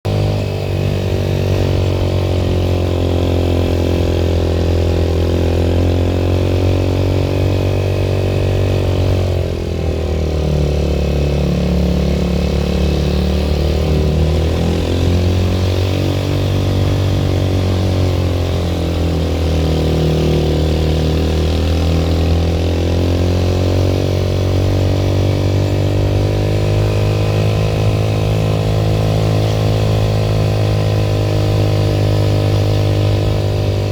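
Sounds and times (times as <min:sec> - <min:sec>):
vehicle engine under load: 0:00.0 - 0:33.9.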